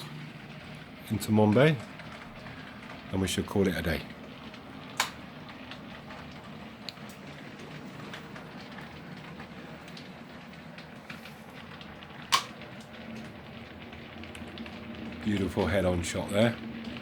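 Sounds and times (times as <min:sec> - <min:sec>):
sharp clicks: 0:05.0 - 0:05.2.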